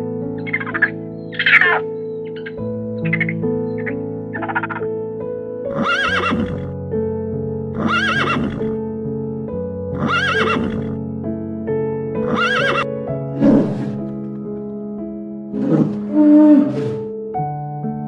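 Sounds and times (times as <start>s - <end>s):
background music of held chords: 0.0s - 18.0s
horse whinnying: 0.4s - 2.5s, 5.7s - 6.7s, 7.8s - 8.7s, 9.9s - 10.9s, 12.2s - 14.0s, 15.6s - 17.1s.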